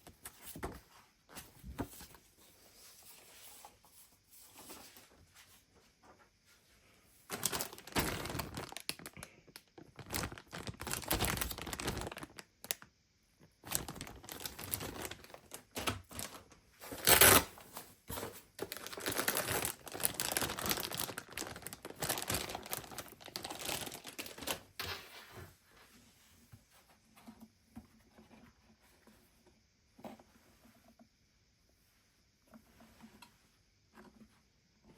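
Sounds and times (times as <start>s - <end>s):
plastic crinkling and rustling: 7.3s - 12.9s, 13.6s - 24.9s.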